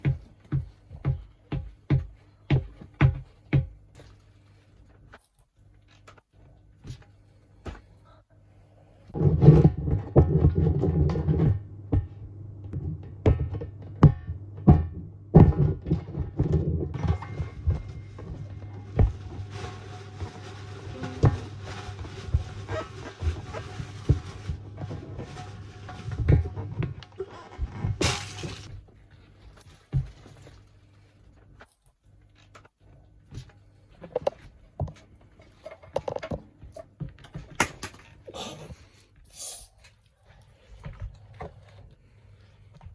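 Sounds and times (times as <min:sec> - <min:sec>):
steady low hum: 0:06.4 - 0:29.0.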